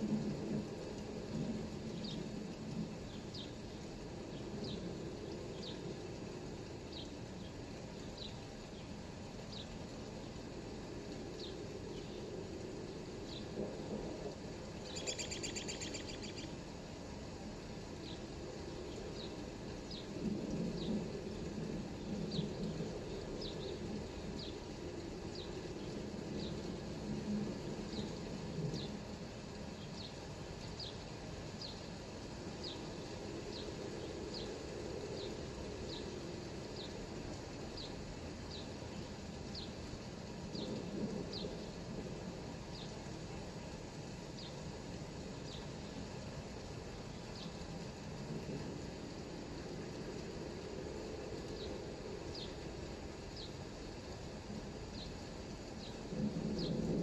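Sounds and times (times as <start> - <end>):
light rain hiss: 0.0 - 57.0
songbird chirping: 1.9 - 6.2, 6.9 - 10.4, 11.3 - 13.7, 14.8 - 16.7, 18.0 - 20.2, 22.0 - 26.8, 29.8 - 31.9, 32.6 - 39.8, 44.3 - 44.6, 47.0 - 47.6, 51.4 - 52.7.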